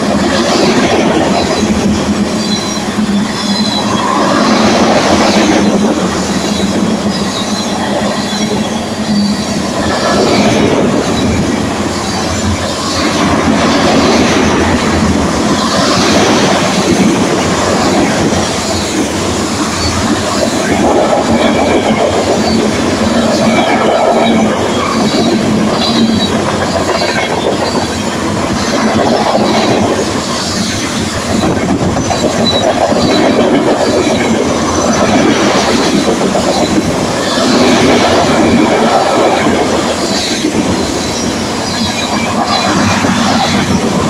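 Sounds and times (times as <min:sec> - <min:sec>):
freight train wheels rumbling: 0:00.0 - 0:44.0
faint high wheel squeals: 0:02.4 - 0:04.4, 0:06.4 - 0:09.6.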